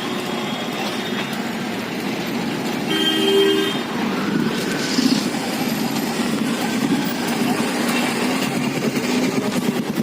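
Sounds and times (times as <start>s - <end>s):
street traffic: 0.0s - 10.0s
vehicle horn: 2.9s - 3.9s.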